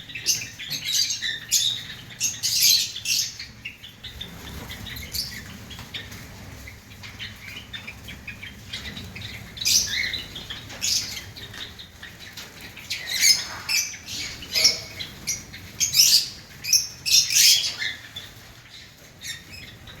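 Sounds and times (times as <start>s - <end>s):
sparrows chirping: 0.0s - 20.0s.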